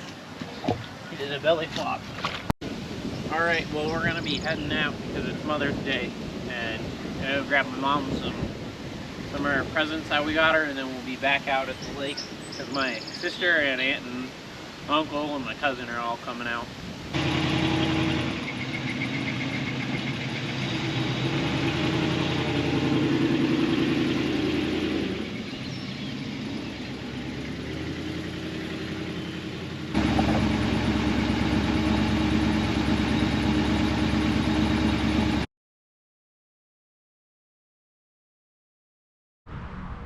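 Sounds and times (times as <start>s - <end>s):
vehicle engine running: 17.1s - 35.5s.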